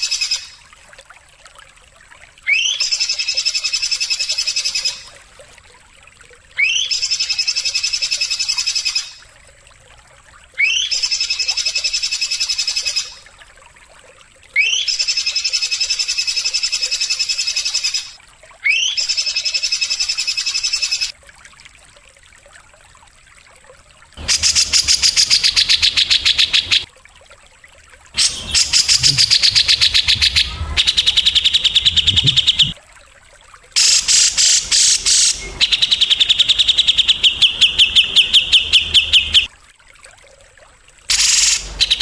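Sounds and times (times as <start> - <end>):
songbird whistle and buzzing trill: 24.2 - 26.8, 28.2 - 32.8, 33.8 - 39.5, 41.1 - 42.0
loud rapid bird trill: 24.2 - 26.9, 28.2 - 32.8, 33.8 - 39.5, 41.1 - 42.0.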